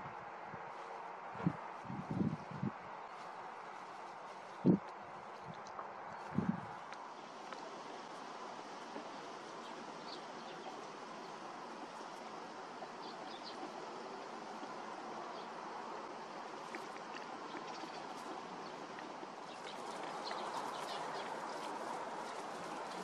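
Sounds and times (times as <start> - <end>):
steady rushing background noise: 0.0 - 23.0.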